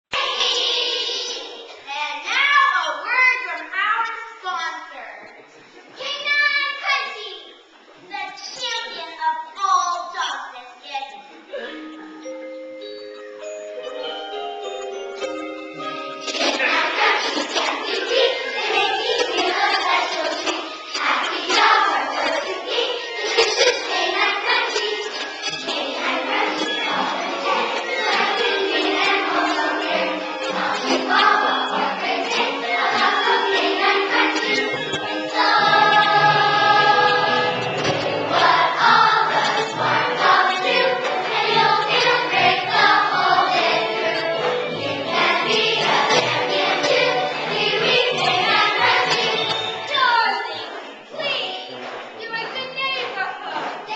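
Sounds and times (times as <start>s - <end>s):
choir singing: 0.2s - 1.7s, 15.8s - 52.0s.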